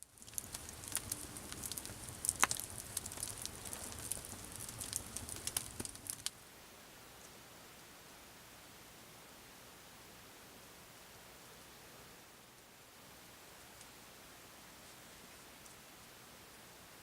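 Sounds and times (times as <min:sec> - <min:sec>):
campfire crackling and popping: 0:00.0 - 0:06.4
faint steady hiss: 0:00.0 - 0:17.0.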